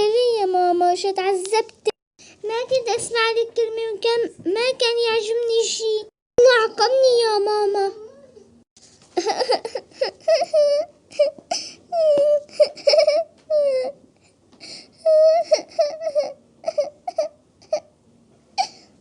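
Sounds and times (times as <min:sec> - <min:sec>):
girl crying and sobbing: 0:09.2 - 0:14.0, 0:14.9 - 0:17.9.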